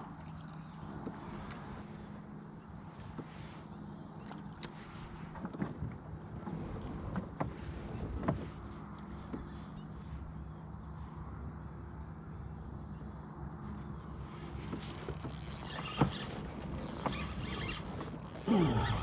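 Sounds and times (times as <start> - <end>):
boat motor humming: 0.0 - 9.9, 13.8 - 19.0
crackling noises: 14.4 - 19.0.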